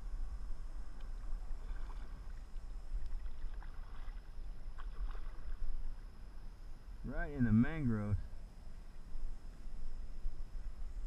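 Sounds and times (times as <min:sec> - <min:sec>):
steady low rumble: 0:00.0 - 0:11.0
paddle splashes and drips: 0:00.9 - 0:06.1.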